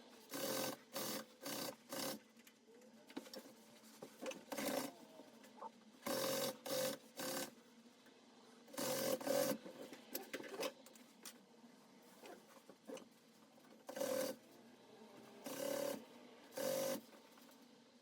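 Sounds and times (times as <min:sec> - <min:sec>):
sewing machine stitching: 0:15.4 - 0:17.1.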